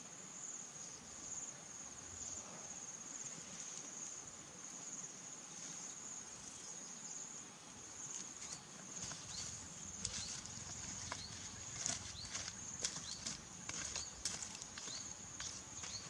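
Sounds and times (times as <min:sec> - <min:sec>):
insects trilling: 0:00.1 - 0:16.0.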